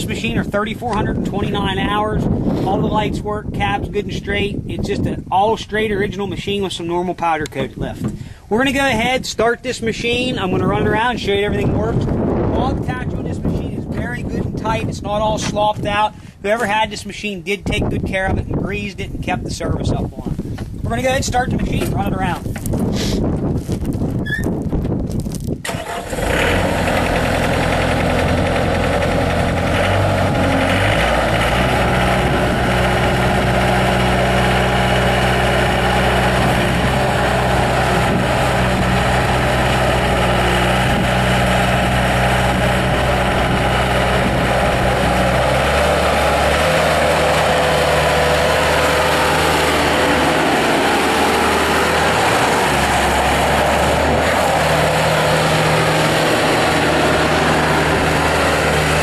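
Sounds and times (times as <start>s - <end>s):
diesel engine running: 25.6s - 59.0s.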